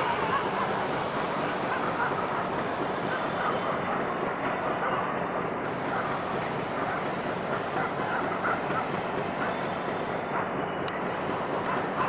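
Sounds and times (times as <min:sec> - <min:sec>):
train coaches rolling: 0:00.0 - 0:12.0.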